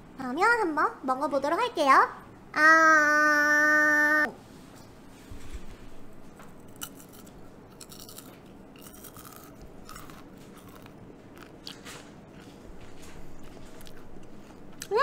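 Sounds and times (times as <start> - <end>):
person chewing popcorn crunchily: 6.6 - 15.0.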